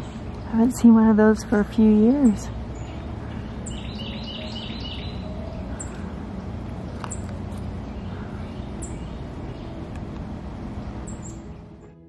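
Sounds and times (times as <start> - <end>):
low outdoor rumble: 0.0 - 12.0
thin high bird calls: 2.2 - 9.8.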